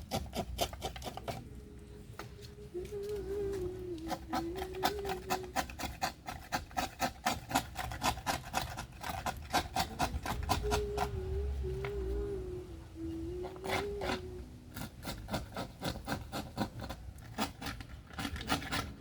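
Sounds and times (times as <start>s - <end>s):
scraping strokes on workpiece: 0.0s - 1.5s, 3.0s - 12.2s, 13.0s - 19.0s
wavering hum-like tone: 10.6s - 14.7s.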